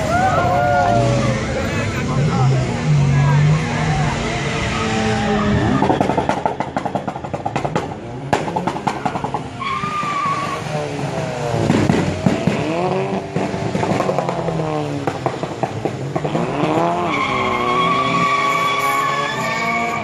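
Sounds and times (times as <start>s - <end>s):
car engines revving: 0.0s - 20.0s
tire squeal: 3.2s - 7.3s, 8.8s - 11.1s, 16.3s - 20.0s.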